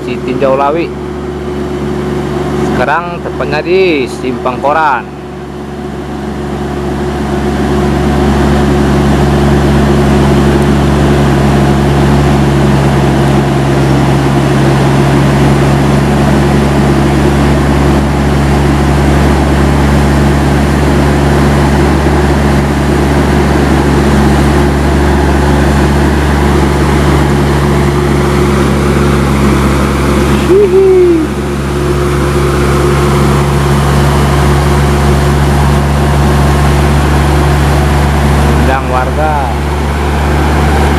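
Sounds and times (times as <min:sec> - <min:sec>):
diesel truck engine running: 0:00.0 - 0:40.9
brief rising and falling sound: 0:30.4 - 0:31.5.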